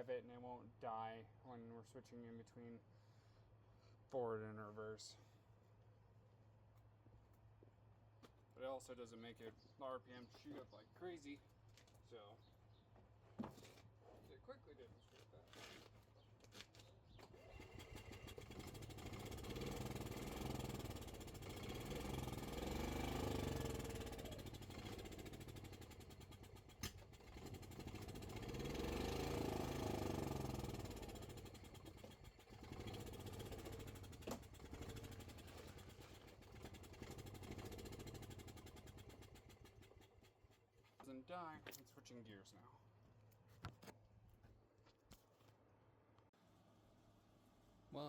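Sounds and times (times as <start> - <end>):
golf cart engine revving: 17.2 - 40.3.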